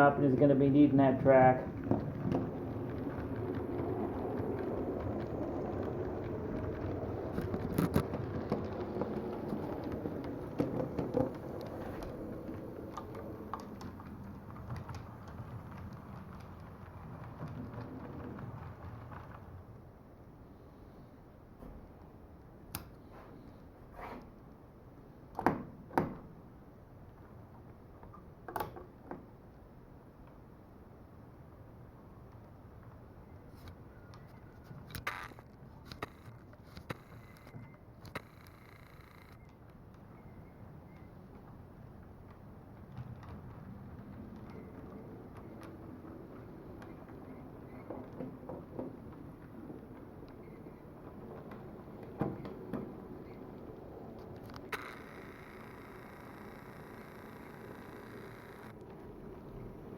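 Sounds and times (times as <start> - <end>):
model train rumbling on track: 0.0 - 21.6, 40.8 - 59.9
sharp clicks: 34.9 - 40.0.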